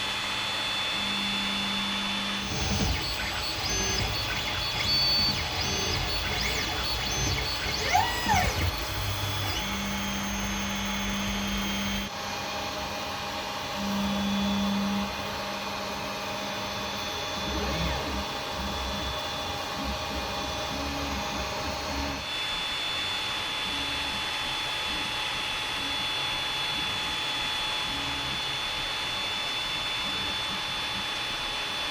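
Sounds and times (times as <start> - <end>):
stepper motors whining: 1.1 - 12.1, 16.4 - 22.2.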